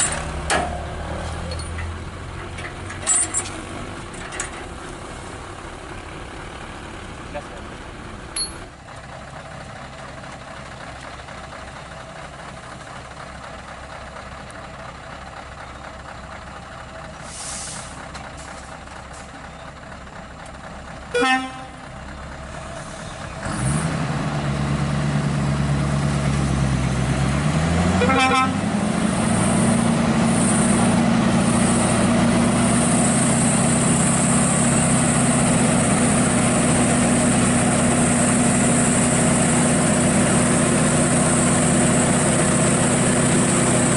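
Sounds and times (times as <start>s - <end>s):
truck diesel engine revving: 9.0s - 43.9s
short horn toot: 21.2s - 21.8s, 28.0s - 28.6s.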